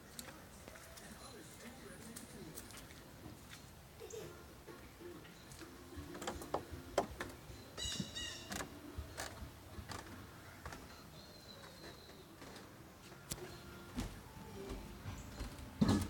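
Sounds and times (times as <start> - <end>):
bird chirping: 5.0 - 9.3, 10.0 - 13.9.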